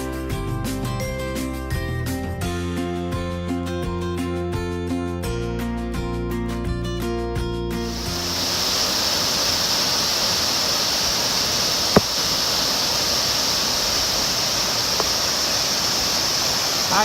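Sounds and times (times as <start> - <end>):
waterfall rushing: 7.8 - 17.0.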